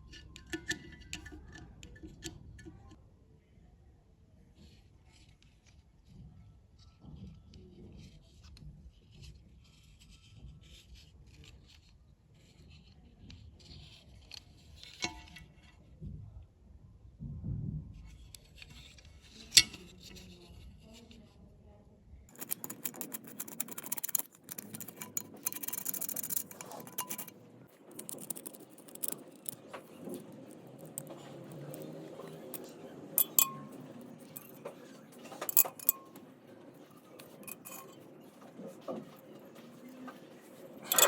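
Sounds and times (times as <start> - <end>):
small metal parts clicking and scraping: 22.3 - 41.0.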